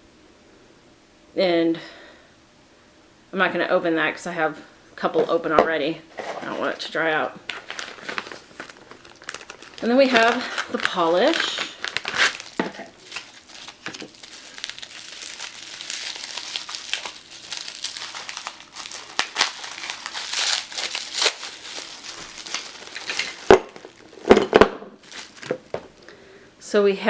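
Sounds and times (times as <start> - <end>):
packaging crinkling and rustling: 6.1 - 26.0.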